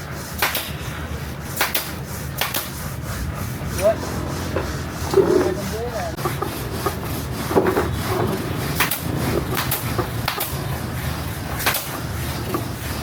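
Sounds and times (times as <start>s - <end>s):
steady low hum: 0.0s - 13.0s
sharp clicks and knocks: 0.4s - 0.8s, 1.5s - 2.8s, 6.2s - 10.6s, 11.5s - 12.8s.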